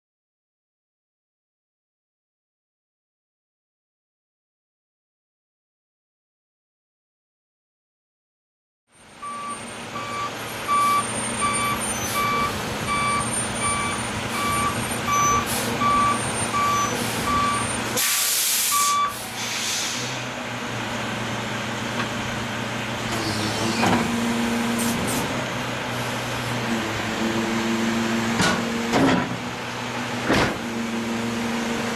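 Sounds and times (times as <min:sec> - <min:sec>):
truck engine running: 0:09.0 - 0:18.0
truck reversing alarm beeping: 0:09.0 - 0:19.4
air brake hiss: 0:18.0 - 0:20.3.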